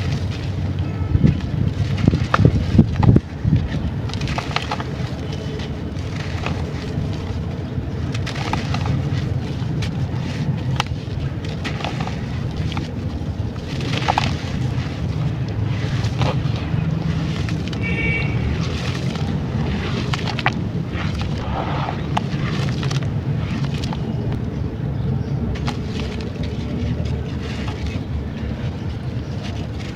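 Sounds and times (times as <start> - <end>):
dry clay crumbling by hand: 0.0 - 24.6, 25.2 - 29.9
low rumble: 18.4 - 29.4.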